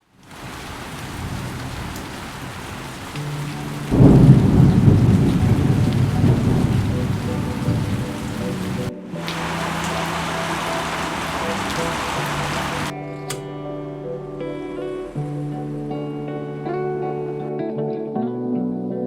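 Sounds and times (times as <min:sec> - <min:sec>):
steady rain: 0:00.0 - 0:13.0
thunder rumbling: 0:00.2 - 0:12.9.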